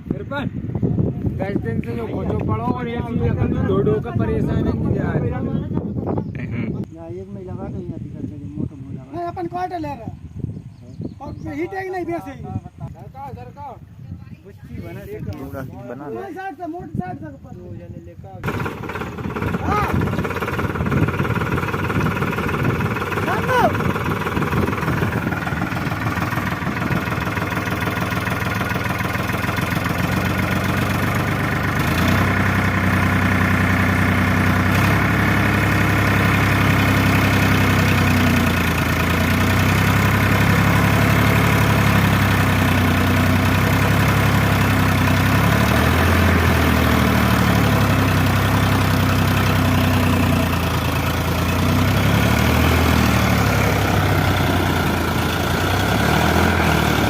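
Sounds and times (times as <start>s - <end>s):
tractor diesel engine running: 18.4s - 57.0s.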